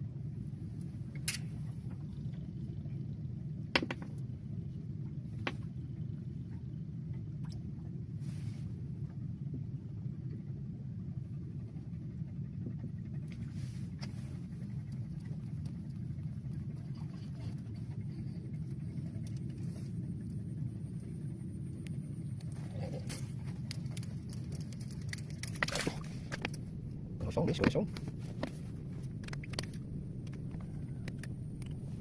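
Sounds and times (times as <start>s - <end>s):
wind buffeting microphone: 7.9s - 32.0s
faint clicks: 29.1s - 31.8s.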